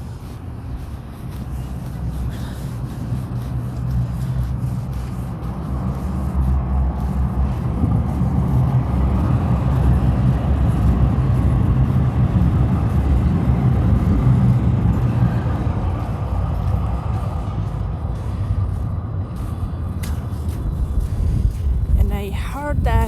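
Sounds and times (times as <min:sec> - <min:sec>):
road noise: 0:00.0 - 0:23.0
vehicle engine rumbling: 0:00.0 - 0:23.0.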